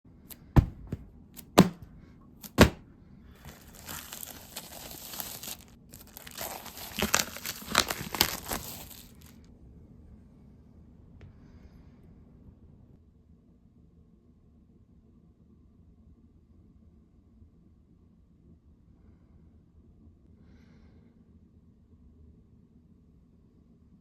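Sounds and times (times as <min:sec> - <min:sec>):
packaging tearing and crinkling: 0:00.3 - 0:01.8, 0:02.4 - 0:02.8, 0:03.4 - 0:09.4
sharp knocks: 0:00.5 - 0:01.9.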